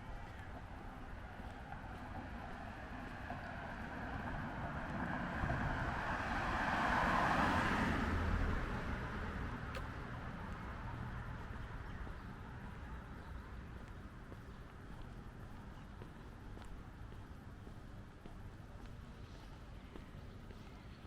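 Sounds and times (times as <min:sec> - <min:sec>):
car passing: 0:02.2 - 0:11.5.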